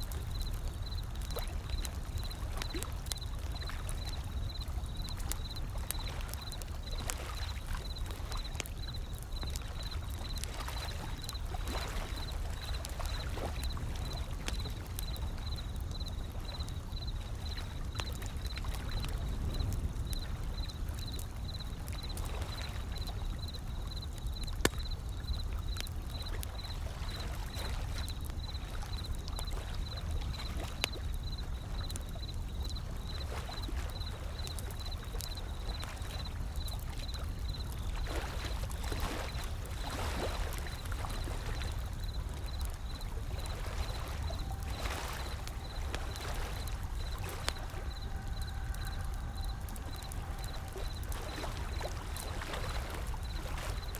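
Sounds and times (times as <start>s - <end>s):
wood fire crackling and popping: 0.0s - 53.9s
ocean waves rolling in: 38.0s - 53.9s.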